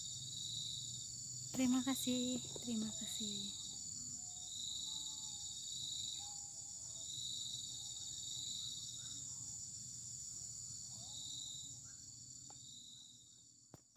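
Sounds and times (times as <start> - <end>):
insects buzzing high: 0.0 - 13.6.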